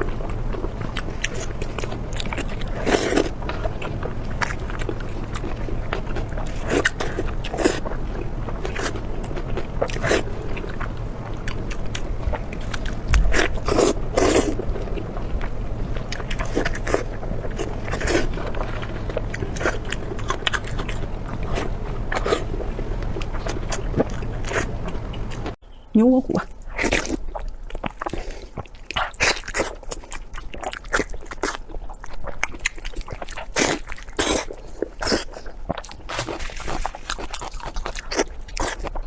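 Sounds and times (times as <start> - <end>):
person biting and chewing food: 0.0 - 25.6, 26.5 - 39.0.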